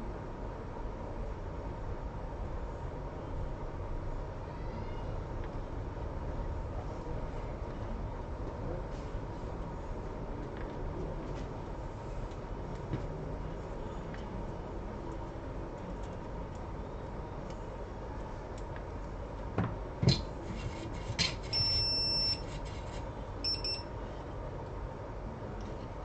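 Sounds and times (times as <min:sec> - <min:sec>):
steady electrical hum: 0:00.0 - 0:26.0
electronic beeps: 0:21.6 - 0:22.4, 0:23.4 - 0:23.8.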